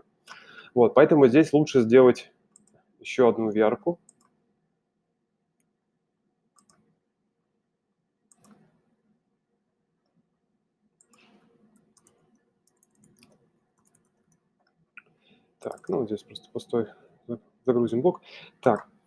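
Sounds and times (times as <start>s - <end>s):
computer mouse clicks: 2.6s - 2.8s, 4.1s - 4.4s, 6.6s - 6.8s, 8.3s - 8.8s, 11.0s - 14.2s, 15.0s - 16.0s.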